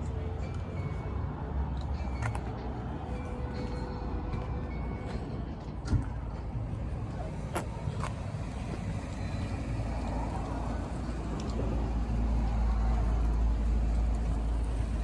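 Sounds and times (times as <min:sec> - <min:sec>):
car engine running: 0:07.2 - 0:15.0.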